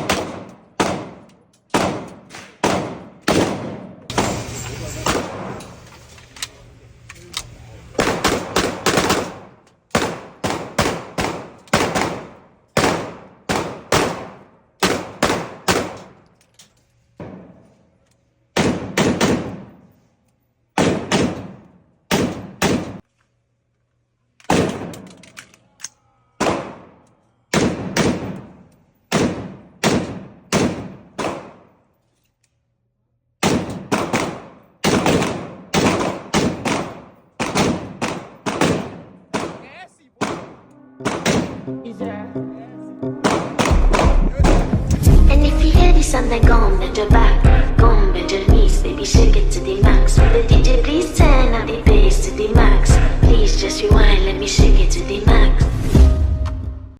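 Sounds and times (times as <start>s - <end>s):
gunshots with ringing tail: 0.0s - 5.7s, 8.0s - 16.2s, 18.5s - 19.9s, 20.8s - 23.0s, 26.4s - 31.8s, 33.4s - 41.8s, 43.2s - 45.3s.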